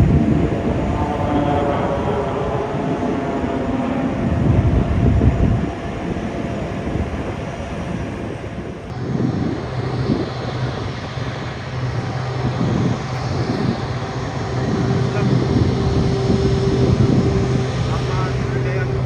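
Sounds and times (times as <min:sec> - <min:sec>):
airplane engine droning: 0:00.0 - 0:19.0
low steady hum: 0:08.8 - 0:19.0.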